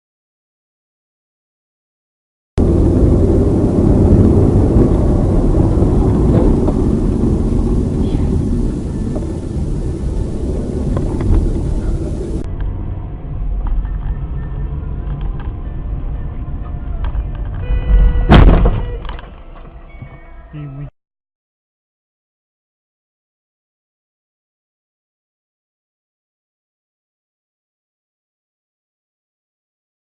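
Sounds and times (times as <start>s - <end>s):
car driving rumble: 2.6s - 20.9s.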